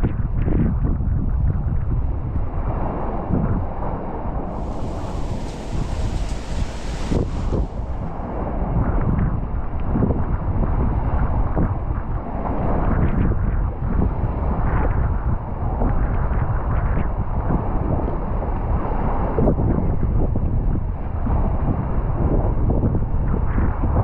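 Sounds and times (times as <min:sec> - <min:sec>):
wind buffeting microphone: 0:04.4 - 0:12.2.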